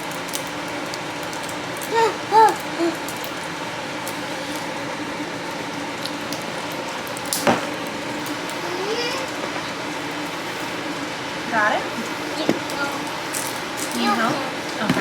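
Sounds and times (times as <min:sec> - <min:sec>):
person humming: 0:01.8 - 0:03.1.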